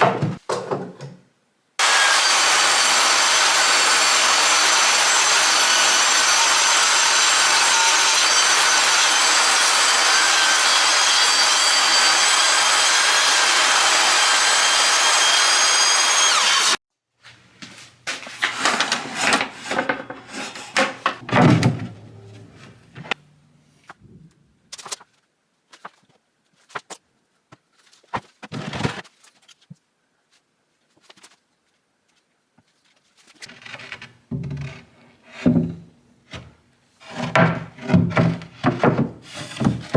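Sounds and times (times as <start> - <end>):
power tool motor whining: 1.8 - 16.8
wooden boards knocking: 18.5 - 23.2, 37.1 - 39.9.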